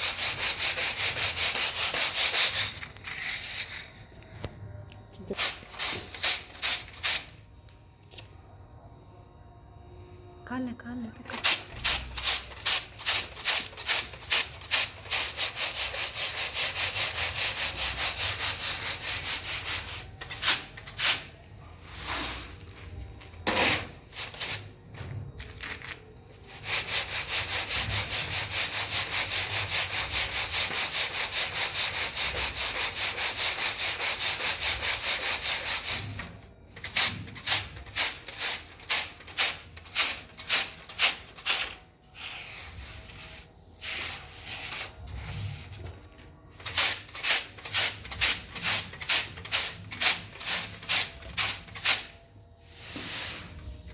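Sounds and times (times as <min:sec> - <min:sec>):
rubbing or scraping strokes: 0:00.0 - 0:04.0, 0:11.9 - 0:22.7, 0:37.4 - 0:46.0, 0:46.6 - 0:53.9.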